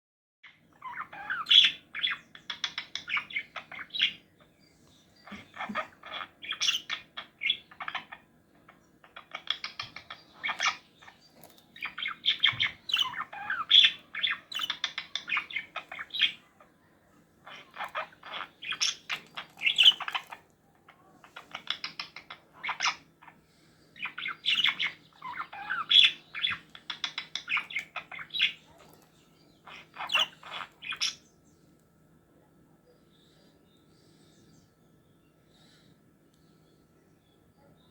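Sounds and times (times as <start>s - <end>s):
parrot chattering and chirping: 0.5s - 4.6s, 5.2s - 16.8s, 17.4s - 23.4s, 24.0s - 31.3s.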